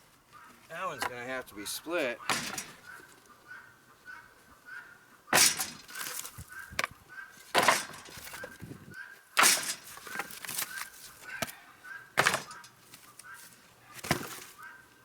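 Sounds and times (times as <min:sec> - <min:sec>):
loud strikes: 0:02.2 - 0:02.8
wood cracking and clattering: 0:02.2 - 0:03.0, 0:05.4 - 0:08.7, 0:09.4 - 0:11.5, 0:12.2 - 0:13.0.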